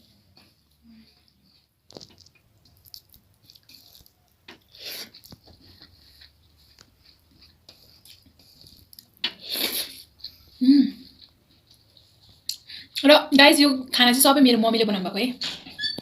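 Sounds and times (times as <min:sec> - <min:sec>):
small clicks and soft rustles: 0:00.3 - 0:09.3
eating sounds: 0:00.4 - 0:13.0.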